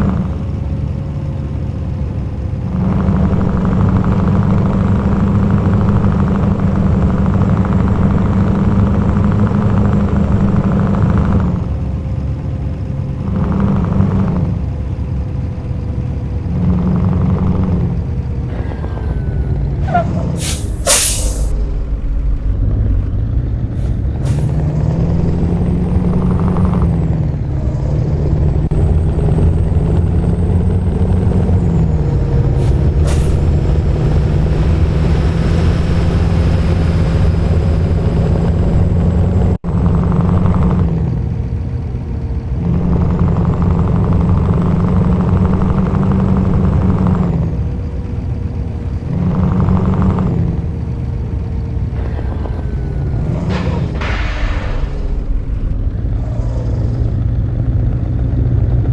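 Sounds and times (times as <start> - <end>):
diesel truck engine revving: 0.0 - 58.9
air brake hiss: 20.4 - 21.6, 23.8 - 24.6, 32.6 - 33.5.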